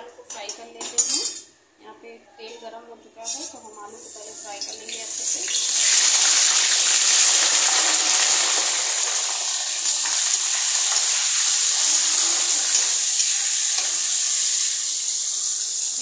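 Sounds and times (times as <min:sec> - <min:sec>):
potatoes sizzling in hot oil: 0:04.0 - 0:16.0.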